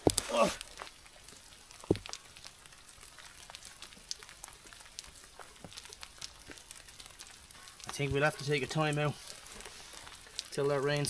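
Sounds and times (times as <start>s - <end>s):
light rain falling: 0.0s - 11.0s.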